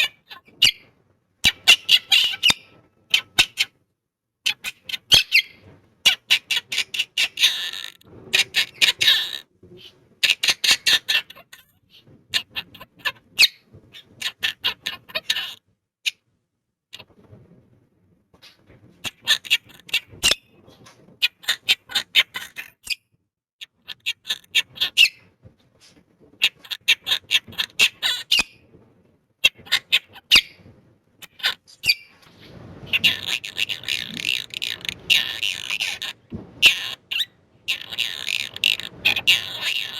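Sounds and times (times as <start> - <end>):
parrot chattering and squawking: 0.0 - 3.8, 4.5 - 15.6, 18.4 - 23.0, 23.6 - 25.2, 26.4 - 28.6, 29.4 - 30.6, 31.2 - 32.1, 32.8 - 39.9.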